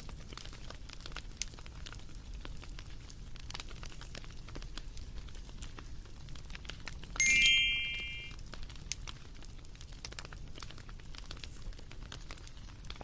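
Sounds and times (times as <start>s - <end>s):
bonfire crackling and popping: 0.0s - 13.0s
high ringing chime: 7.2s - 8.3s.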